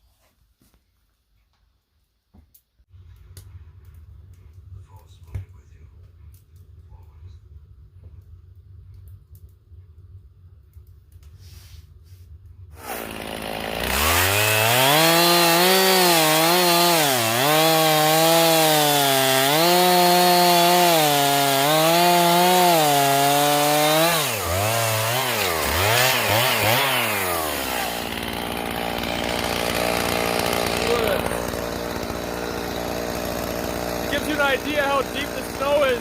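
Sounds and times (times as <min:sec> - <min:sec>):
chainsaw cutting wood: 0:12.7 - 0:36.0.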